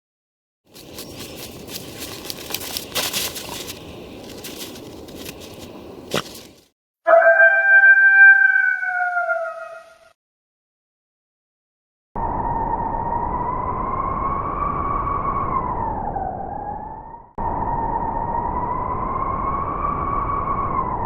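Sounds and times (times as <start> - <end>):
rough crackling noise: 0.7 - 6.7
wolf howling: 7.1 - 10.1.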